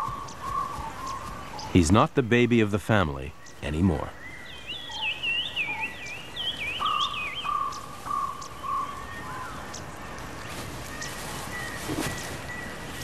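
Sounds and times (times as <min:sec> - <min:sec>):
birds warbling song: 0:00.0 - 0:13.0.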